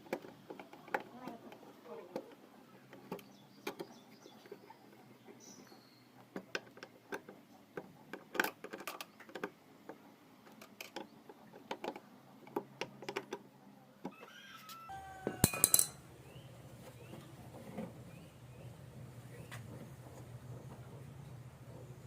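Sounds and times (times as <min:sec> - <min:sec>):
small parts and tools clicking: 0:06.3 - 0:09.6, 0:10.4 - 0:13.4, 0:15.3 - 0:16.0.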